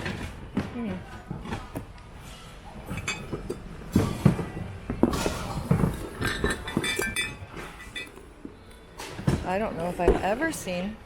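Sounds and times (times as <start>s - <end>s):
dishes clinking and knocking: 2.8s - 8.3s.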